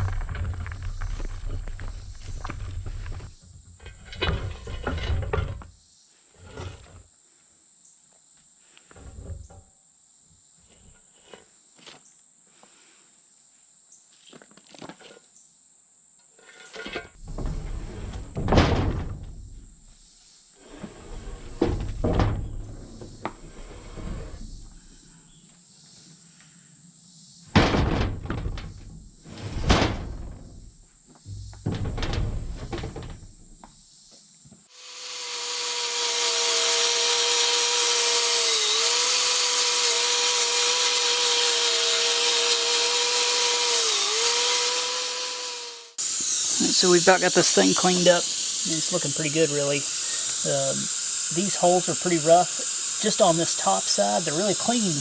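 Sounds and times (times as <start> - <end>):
scraping paint off metal: 0.0 - 5.6, 6.4 - 7.0, 20.6 - 24.8
faint high whine: 46.0 - 55.0.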